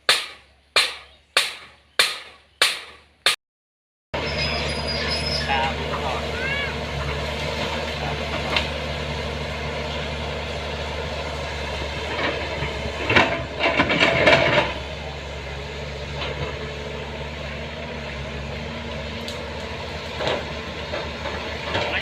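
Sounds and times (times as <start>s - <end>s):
engine humming: 4.2s - 22.0s
rattling and knocking: 12.0s - 14.9s.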